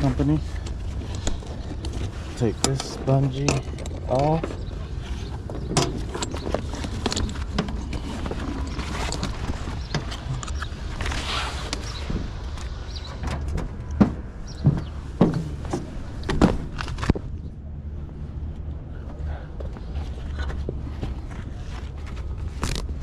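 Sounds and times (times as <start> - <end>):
knocks and clacks of cords: 0.0 - 17.5
steady low rumble: 0.0 - 23.0.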